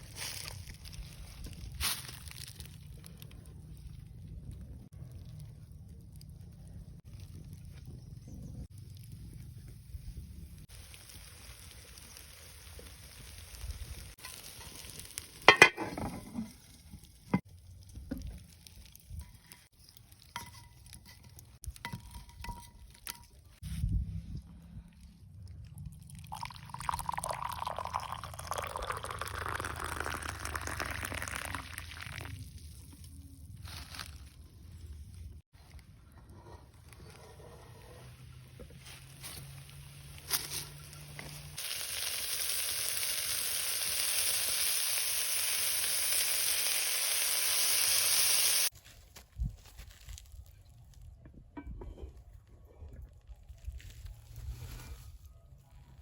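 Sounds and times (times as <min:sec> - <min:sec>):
food sizzling in hot oil: 0:10.6 - 0:16.6, 0:39.6 - 0:48.7
liquid pouring into container: 0:25.9 - 0:32.5.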